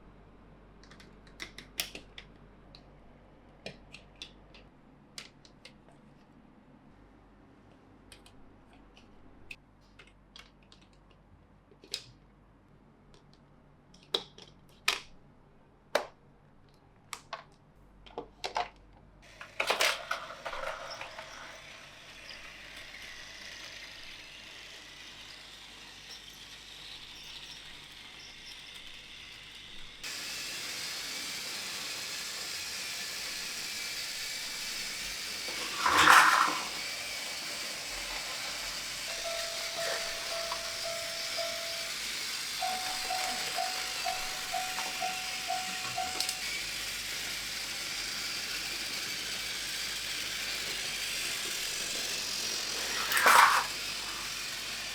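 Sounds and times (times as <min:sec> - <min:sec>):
plastic toy track clicks: 0:18.1 - 0:54.9.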